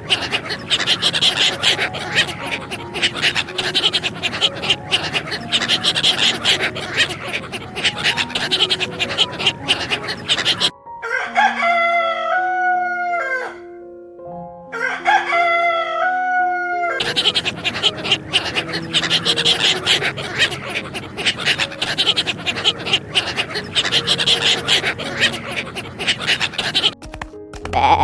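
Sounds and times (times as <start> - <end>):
rooster crowing: 10.6 - 13.7, 14.7 - 21.5.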